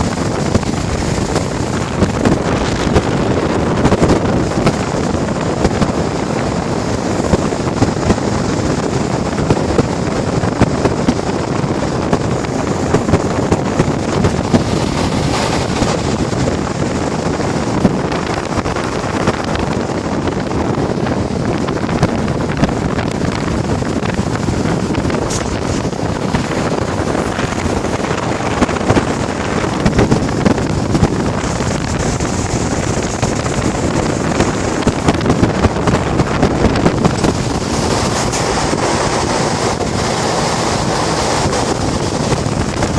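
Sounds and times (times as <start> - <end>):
air conditioner fan rushing: 22.4 - 42.9.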